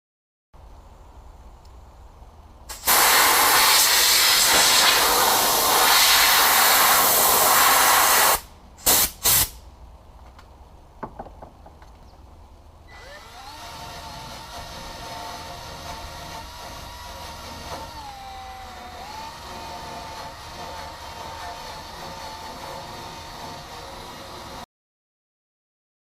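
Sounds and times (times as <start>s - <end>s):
pressurised spray hissing: 2.7s - 9.6s.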